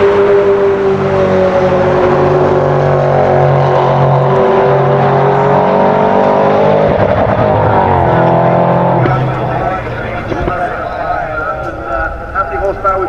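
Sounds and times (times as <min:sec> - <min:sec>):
sports car engine revving high: 0:00.0 - 0:13.0.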